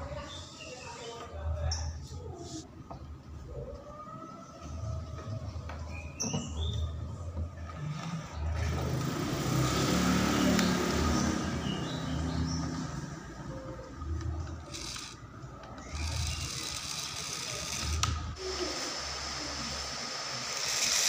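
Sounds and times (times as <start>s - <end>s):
passing vehicle noise: 7.7s - 15.4s.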